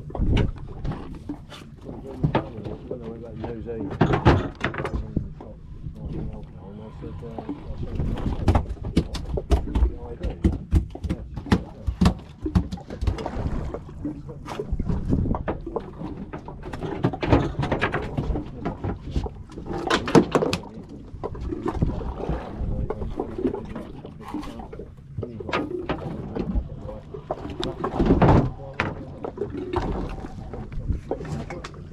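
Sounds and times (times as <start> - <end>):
boat engine low rumble: 0.0 - 31.9
knocks and clatter: 3.8 - 5.1, 8.1 - 13.3.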